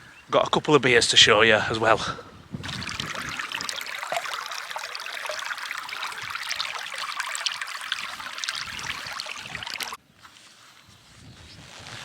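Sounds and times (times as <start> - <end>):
stream babbling over stones: 2.6 - 10.0.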